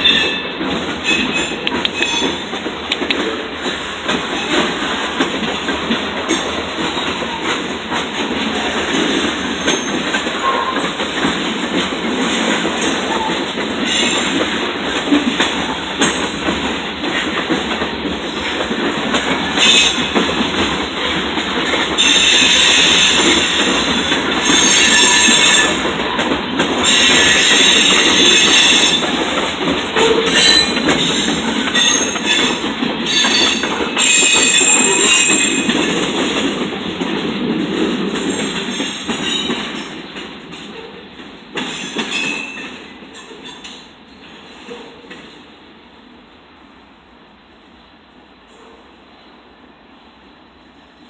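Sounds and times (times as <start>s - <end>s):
wheels clicking over rail joints: 0.0s - 45.4s
freight train cars rolling: 0.0s - 49.6s
high-pitched wheel squeal: 24.4s - 25.8s, 33.1s - 35.7s.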